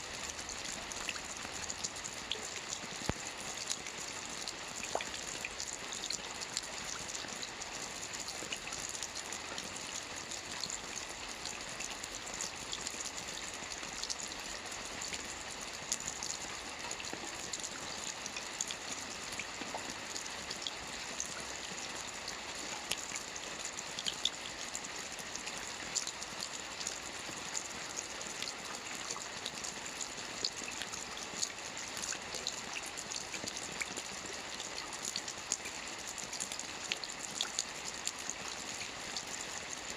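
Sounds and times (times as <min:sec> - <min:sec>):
rain drop ticks: 0:00.1 - 0:07.6.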